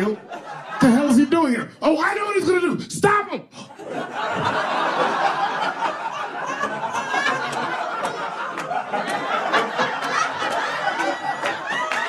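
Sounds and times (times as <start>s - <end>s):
audience laughing: 0.0s - 1.6s, 3.6s - 12.0s
scattered clapping: 5.8s - 12.0s.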